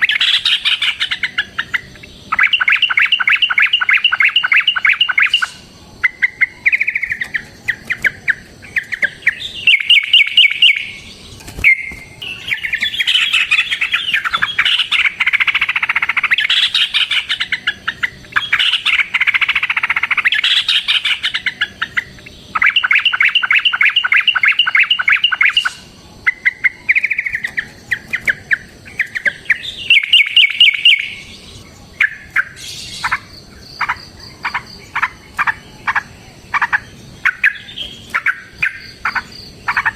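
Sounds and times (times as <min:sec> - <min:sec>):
bulbuls trilling: 0:00.0 - 0:39.9.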